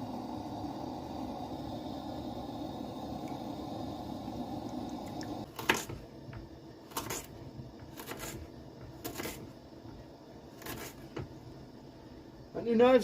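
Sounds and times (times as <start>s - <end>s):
steady hum: 0.0s - 13.0s
knife cutting on a board: 6.9s - 9.5s, 10.6s - 11.2s.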